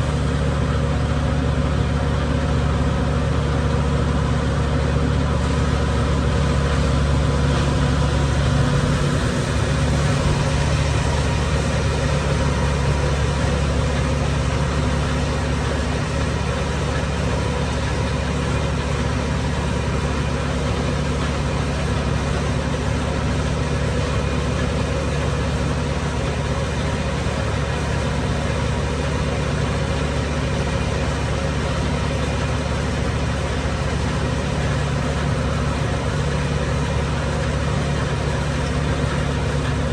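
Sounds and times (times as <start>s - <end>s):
low engine drone: 0.0s - 39.9s
steady hum of tones: 5.6s - 18.5s.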